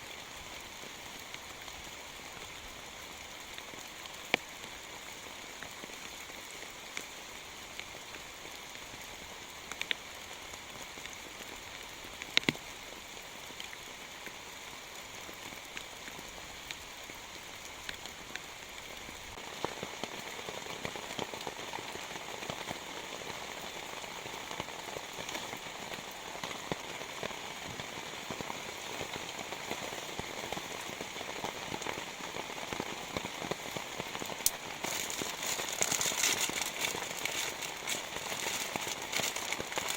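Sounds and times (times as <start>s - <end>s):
raindrops clicking close by: 0.1s - 39.9s
heavy rain falling: 19.4s - 39.9s.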